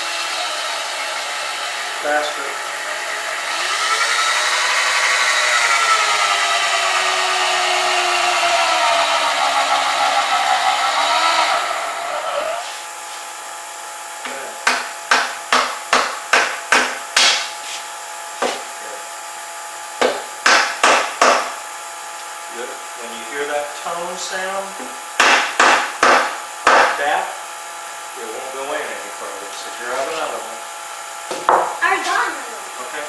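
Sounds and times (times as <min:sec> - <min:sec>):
cordless drill whining: 0:00.0 - 0:13.0.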